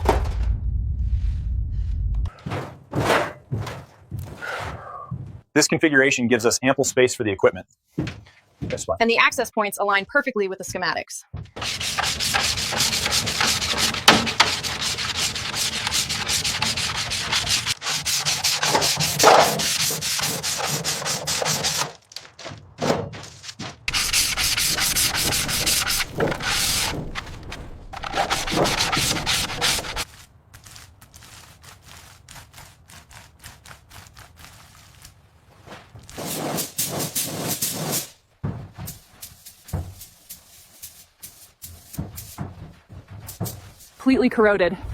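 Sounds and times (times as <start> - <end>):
rough abrasive rubbing: 11.6 - 22.1, 23.8 - 35.2, 36.0 - 38.2.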